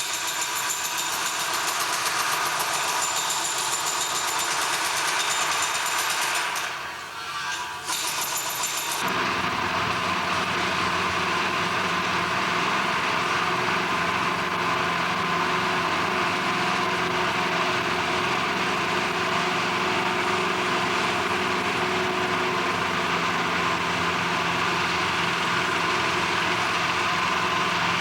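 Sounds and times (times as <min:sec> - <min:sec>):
heavy machine engine drone: 0:09.0 - 0:28.0.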